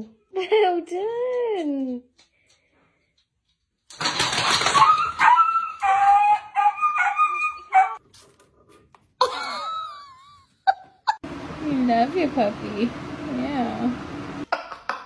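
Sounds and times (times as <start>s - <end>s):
dog whining and yipping: 4.6s - 8.0s.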